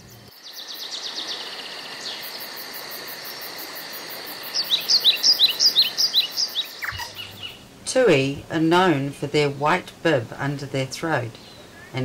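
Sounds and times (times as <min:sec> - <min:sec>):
steady outdoor hiss: 0:00.0 - 0:12.0
songbird trilling and chirping: 0:04.5 - 0:07.6.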